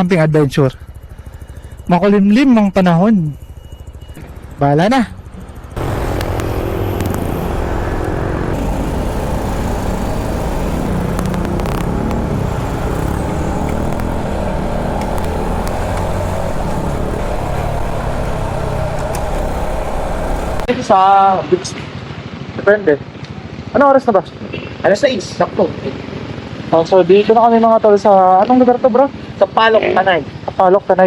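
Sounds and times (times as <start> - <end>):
motorcycle engine running: 0.7 - 20.7
wind and road rush: 4.5 - 20.7.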